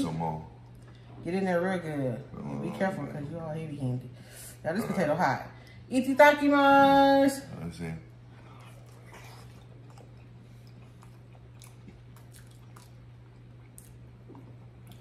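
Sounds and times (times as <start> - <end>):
steady low hum: 0.0 - 15.0
wet chewing and mouth smacks: 8.6 - 15.0.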